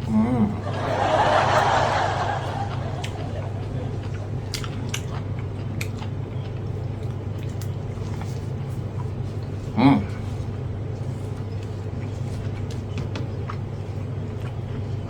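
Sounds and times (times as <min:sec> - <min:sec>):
steady low hum: 0:00.0 - 0:15.0
person chewing food: 0:01.5 - 0:15.0
wet mouth clicks: 0:02.7 - 0:06.2.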